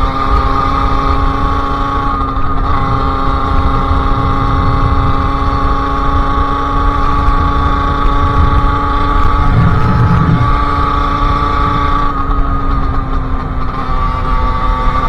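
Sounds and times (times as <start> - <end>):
two-stroke motorcycle engine drone: 9.2 - 15.0.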